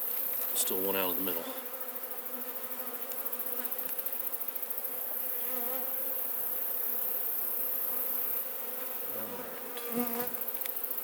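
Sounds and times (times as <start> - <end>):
steady high-pitched hiss: 0.0 - 5.4
honey bees buzzing: 0.1 - 11.0.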